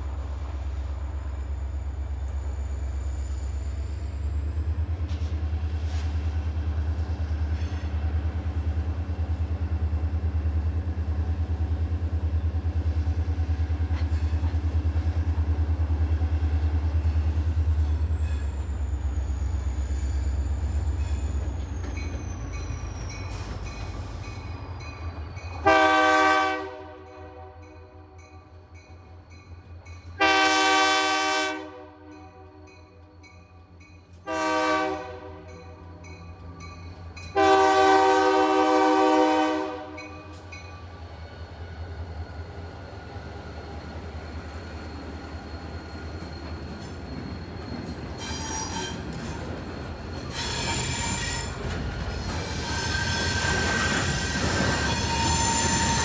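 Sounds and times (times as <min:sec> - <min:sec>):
wheels squealing on rails: 0:00.0 - 0:26.6, 0:32.2 - 0:56.0
freight cars clickety-clack: 0:21.0 - 0:25.7, 0:45.1 - 0:56.0
locomotive horn blasts: 0:25.6 - 0:28.2, 0:30.2 - 0:32.7, 0:34.2 - 0:35.6, 0:37.4 - 0:40.3.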